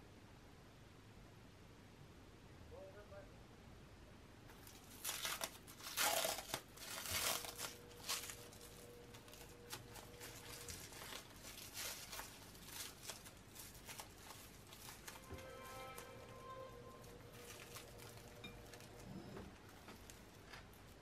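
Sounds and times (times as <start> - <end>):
wrapper crinkling and tearing: 4.5 - 21.0.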